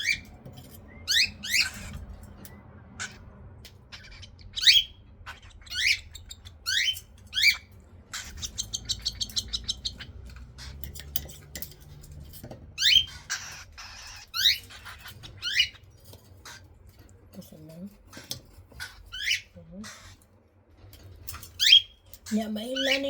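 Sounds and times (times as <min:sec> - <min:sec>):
cockatiel chicks chirping: 0:00.0 - 0:17.1, 0:18.0 - 0:20.3, 0:21.1 - 0:23.0.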